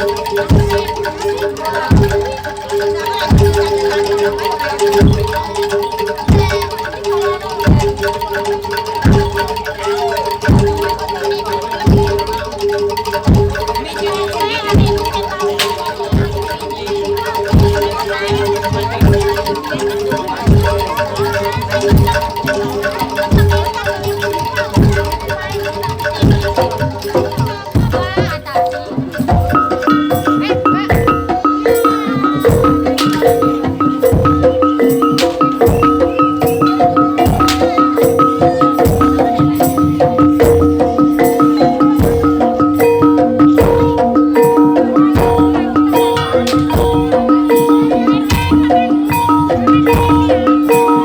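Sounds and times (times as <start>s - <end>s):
gong-chime and metallophone notes: 0.0s - 51.0s
deep drum beat: 25.8s - 51.0s.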